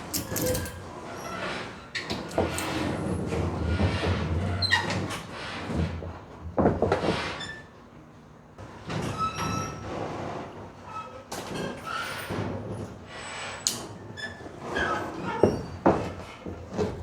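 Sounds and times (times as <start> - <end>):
metal gear scraping and knocking: 0.1 - 0.8.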